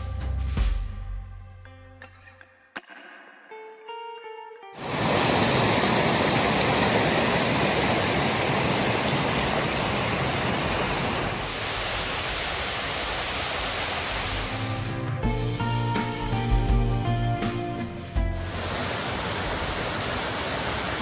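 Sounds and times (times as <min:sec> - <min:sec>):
waterfall roaring: 0:04.8 - 0:15.2, 0:18.4 - 0:21.0.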